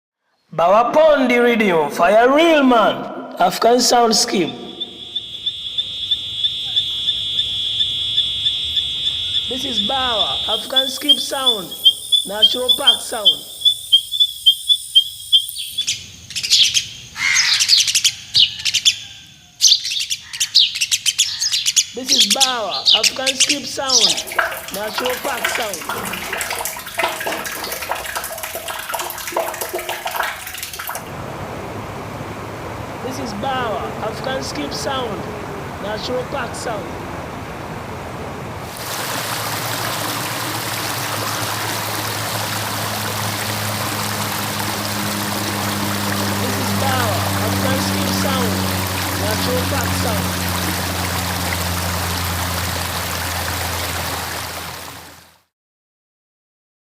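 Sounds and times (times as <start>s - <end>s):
birds chirping and trilling: 4.0s - 31.0s, 40.0s - 52.6s
birds pipping: 4.4s - 31.0s, 38.8s - 55.0s
river water flowing: 8.5s - 13.8s, 21.5s - 55.5s
low steady hum: 23.0s - 55.2s.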